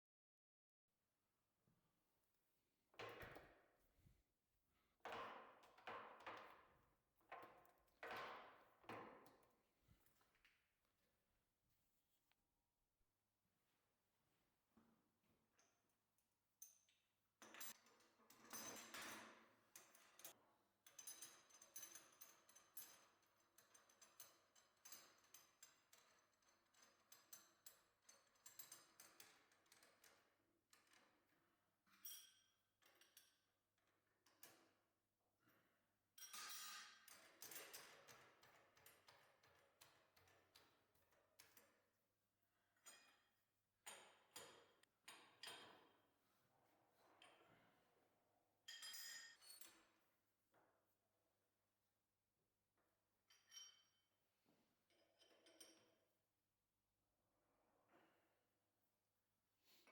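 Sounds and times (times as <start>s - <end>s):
faint metallic clinks: 48.7s - 49.8s, 53.3s - 54.0s.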